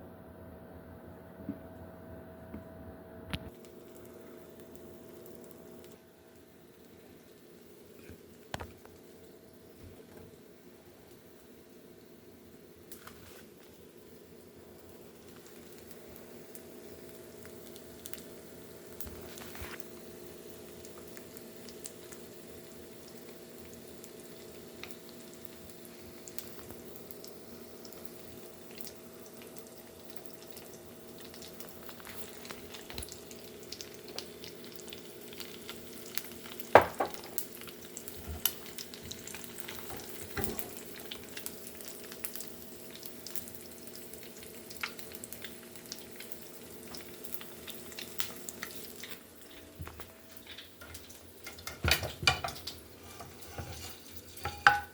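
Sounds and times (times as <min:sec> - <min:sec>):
eggs sizzling in a pan: 0:03.5 - 0:54.9
spatula stirring: 0:52.5 - 0:54.9.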